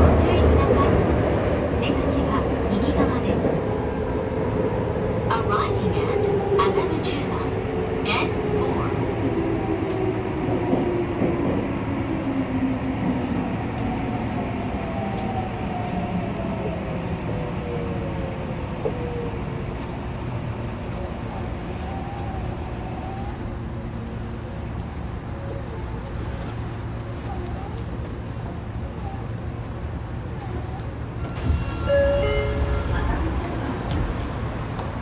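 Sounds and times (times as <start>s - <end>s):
train running rumble: 0.0s - 35.0s
subway motor whine falling: 22.0s - 35.0s.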